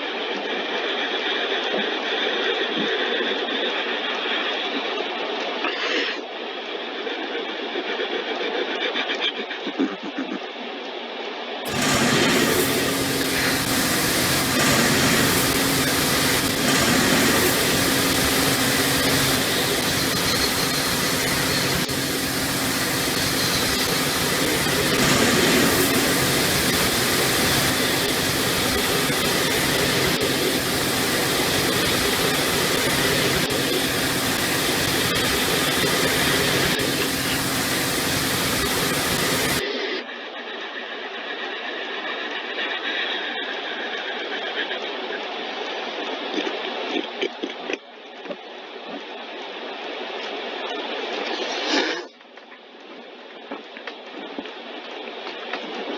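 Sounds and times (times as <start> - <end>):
car wash water spray and machinery: 11.7 - 39.6.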